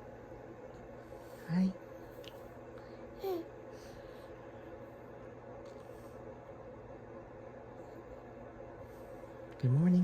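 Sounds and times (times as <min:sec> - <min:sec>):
faint room hum: 0:00.0 - 0:10.0
baby babbling: 0:03.2 - 0:03.5.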